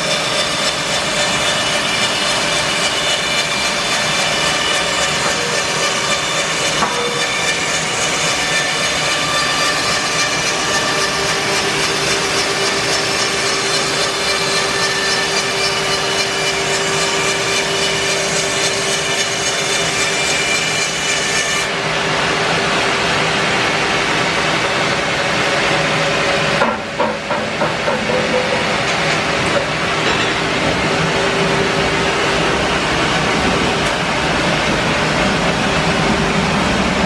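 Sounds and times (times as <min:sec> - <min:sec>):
band saw cutting log: 0:00.0 - 0:21.8.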